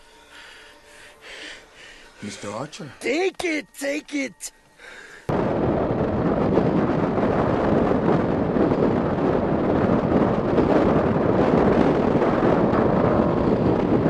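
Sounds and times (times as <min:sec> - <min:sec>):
wind buffeting microphone: 0:05.3 - 0:14.0.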